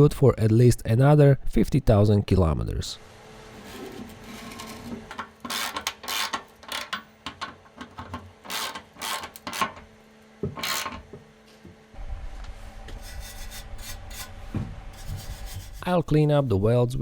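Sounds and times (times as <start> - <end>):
scraping on metal: 3.5 - 9.8, 12.9 - 16.0
rubbing and clinking: 15.0 - 16.0.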